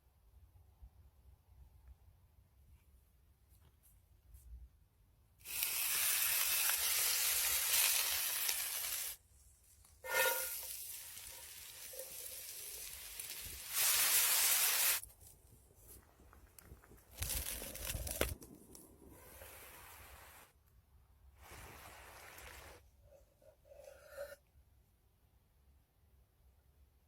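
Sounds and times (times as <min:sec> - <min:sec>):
food sizzling on hot metal: 0:05.4 - 0:09.2, 0:10.0 - 0:15.0, 0:17.2 - 0:18.4
short squealing note: 0:10.0 - 0:10.7.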